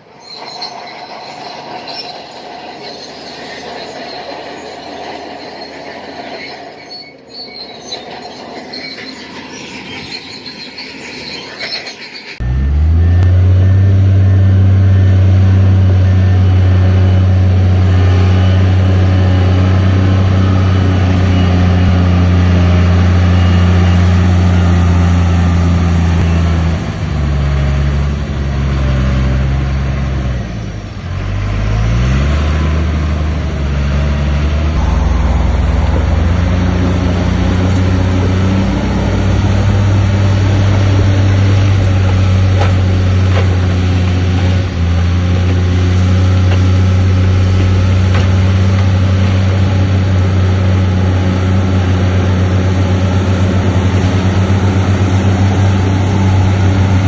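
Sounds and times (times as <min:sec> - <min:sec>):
heavy machinery diesel engine: 0:00.0 - 0:57.0.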